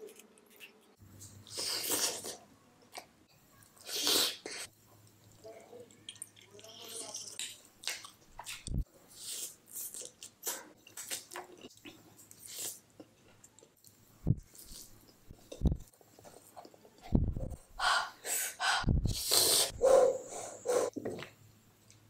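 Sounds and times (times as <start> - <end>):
person breathing: 17.7 - 20.9.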